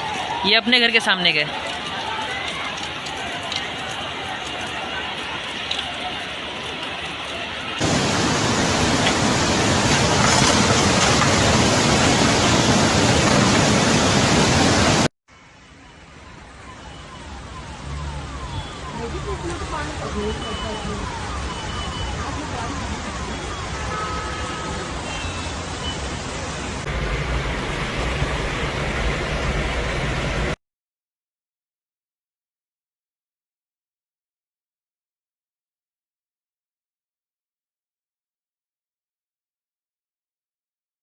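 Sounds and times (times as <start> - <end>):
floodwater rushing: 0.0 - 30.6.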